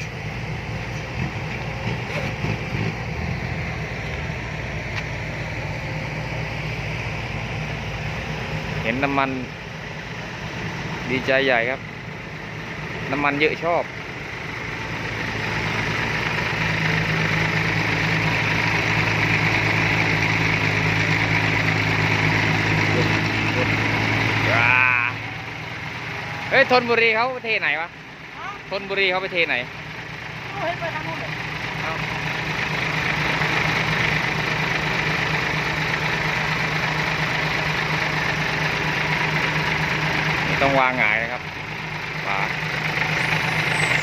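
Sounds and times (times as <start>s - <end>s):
diesel engine idling: 0.0s - 44.0s.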